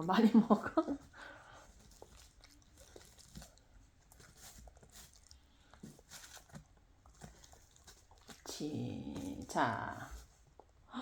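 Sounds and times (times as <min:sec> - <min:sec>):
toddler chewing: 0:01.5 - 0:10.8
soft clicks and crunches: 0:01.6 - 0:10.8.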